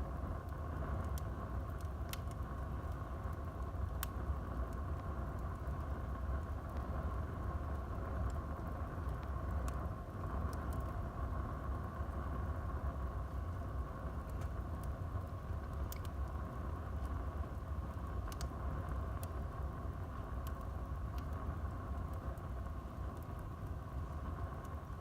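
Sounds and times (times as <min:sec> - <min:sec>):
burning wood crackling: 0:00.0 - 0:25.0
fire rumbling: 0:00.0 - 0:25.0.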